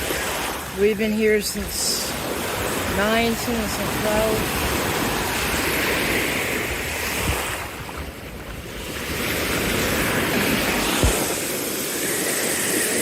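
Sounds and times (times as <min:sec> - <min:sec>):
surf washing onto beach: 0:00.0 - 0:13.0
wind buffeting microphone: 0:00.0 - 0:13.0.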